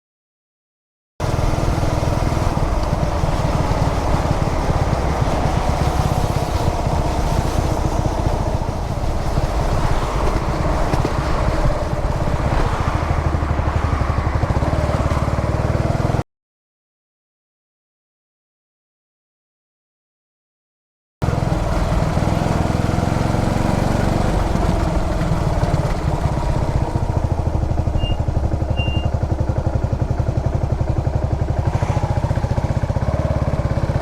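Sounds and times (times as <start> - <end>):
rushing wind noise: 1.2 - 16.0
motorcycle engine running: 1.2 - 16.2, 21.2 - 34.0.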